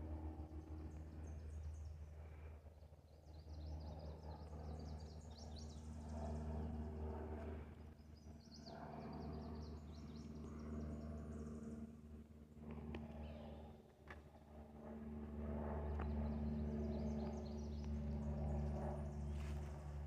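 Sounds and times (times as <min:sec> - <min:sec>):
steady low hum: 0:00.0 - 0:20.0
songbirds chirping and trilling: 0:15.7 - 0:19.6.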